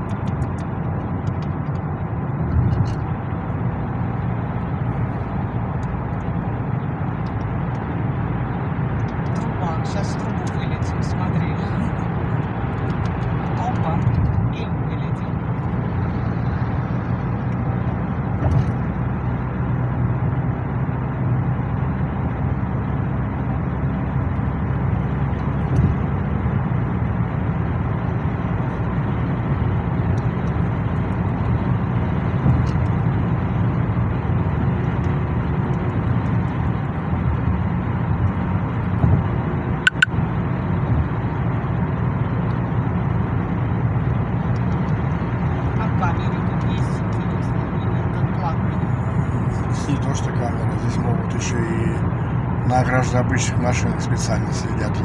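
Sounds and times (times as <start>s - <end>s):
car cabin road rumble: 0.0s - 55.0s
brief sharp click: 39.9s - 40.1s.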